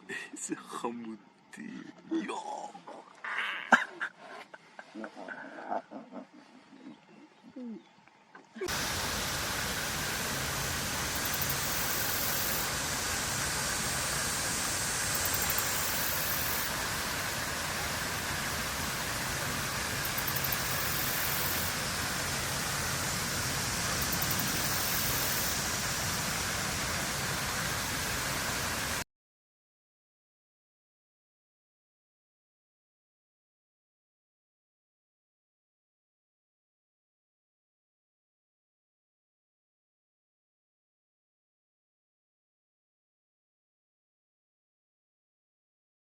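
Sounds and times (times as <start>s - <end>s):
steady rushing hiss: 8.6s - 29.0s.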